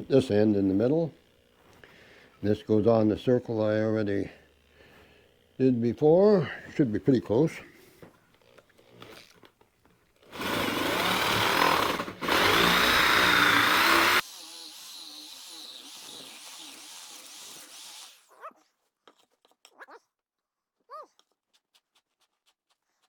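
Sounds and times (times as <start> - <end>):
electric drill boring into wood: 10.2 - 18.3.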